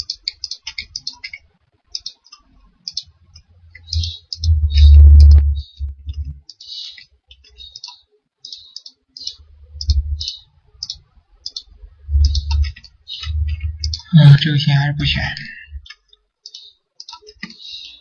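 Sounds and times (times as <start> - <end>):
computer mouse clicking: 0.0 - 5.4, 6.0 - 14.1, 15.8 - 17.6
dull low thumps: 3.7 - 6.4, 9.5 - 10.3, 11.7 - 15.8.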